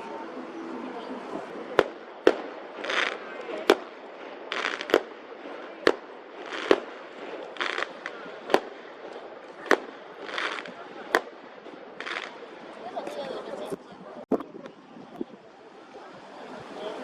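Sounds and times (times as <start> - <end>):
distant firecracker bangs: 1.7 - 12.7.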